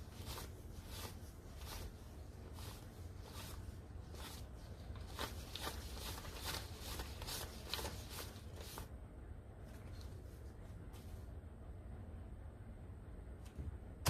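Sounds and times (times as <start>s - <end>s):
banknotes rustling as counted: 0.0s - 8.9s
low steady hum: 0.0s - 14.0s.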